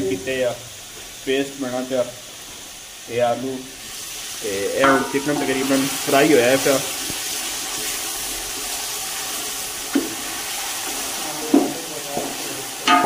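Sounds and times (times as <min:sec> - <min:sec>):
chicken sizzling in oil: 0:00.0 - 0:13.0
wooden spoon knocking pot: 0:04.8 - 0:05.6, 0:11.5 - 0:13.0.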